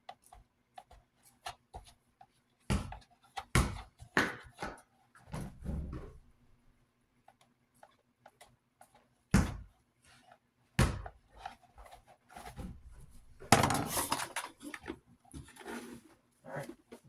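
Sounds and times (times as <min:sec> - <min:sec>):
rustling and knocking: 0:11.8 - 0:16.0.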